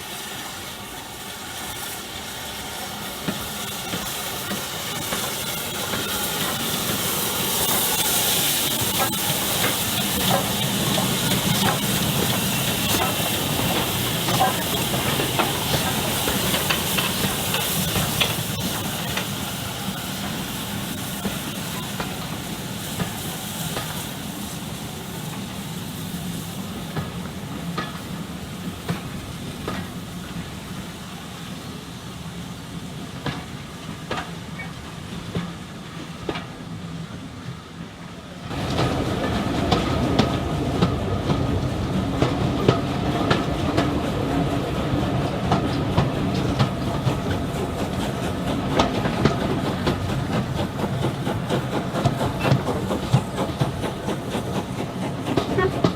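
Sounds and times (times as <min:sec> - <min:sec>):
train wheels clicking over rail joints: 0:00.0 - 0:31.2, 0:32.8 - 0:55.9
train rumble: 0:00.0 - 0:55.9.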